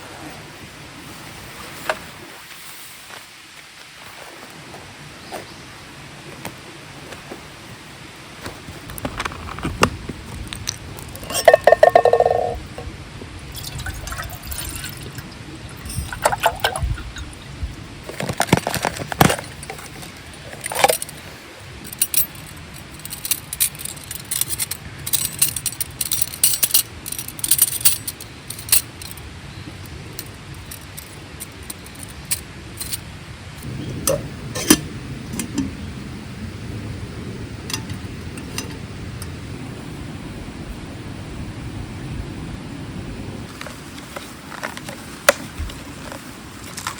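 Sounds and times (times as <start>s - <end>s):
stream water flowing: 0.0s - 46.9s
tableware clinking and knocking: 11.2s - 12.9s, 15.8s - 16.9s, 34.1s - 35.7s.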